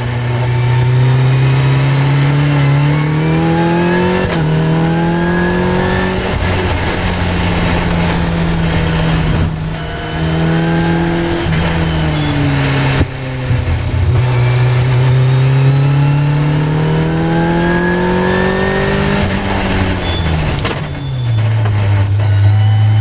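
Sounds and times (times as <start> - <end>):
race car engine: 0.0 - 23.0.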